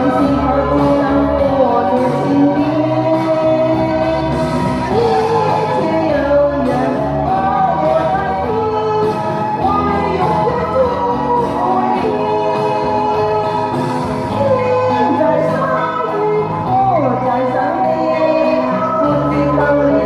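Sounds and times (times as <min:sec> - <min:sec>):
person singing: 0:00.0 - 0:20.0.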